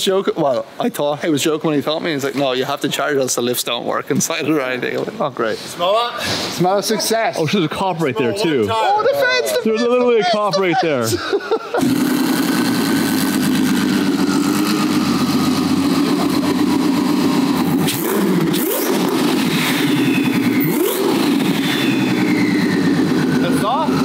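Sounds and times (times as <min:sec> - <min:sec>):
car engine idling: 0:11.8 - 0:24.0
engine throttle blips: 0:11.8 - 0:24.0
faint falling whistle: 0:19.9 - 0:23.2.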